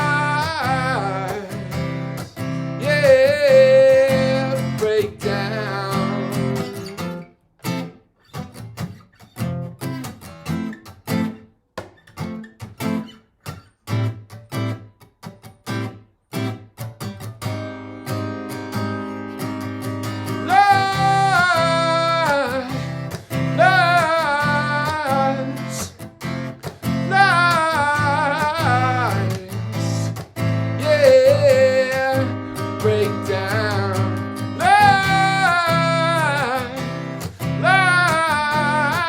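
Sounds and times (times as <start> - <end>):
wordless singing with vibrato: 0.0 - 7.0, 19.0 - 39.0
acoustic guitar strumming: 0.0 - 39.0.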